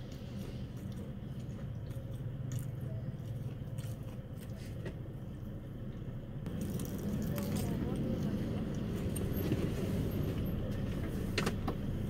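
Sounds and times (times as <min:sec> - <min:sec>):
crunching fried chicken: 0:00.0 - 0:05.0, 0:06.5 - 0:08.3
steady low hum: 0:00.0 - 0:12.0.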